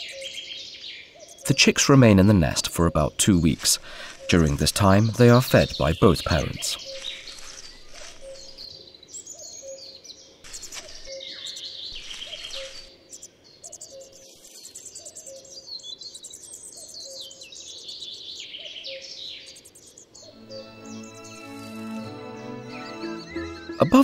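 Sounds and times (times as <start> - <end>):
songbirds twittering: 0.0 - 24.0
low repeated bird note: 20.4 - 24.0.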